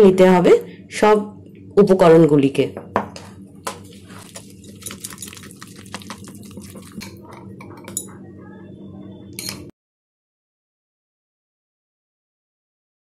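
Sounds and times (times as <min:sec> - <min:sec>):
utensil tapping mixing bowl: 0:03.7 - 0:08.1
wet batter stirring: 0:03.7 - 0:08.2.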